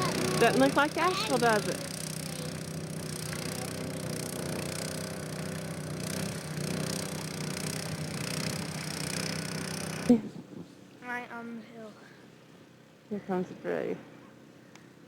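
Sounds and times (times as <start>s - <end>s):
car engine running: 0.0s - 10.1s.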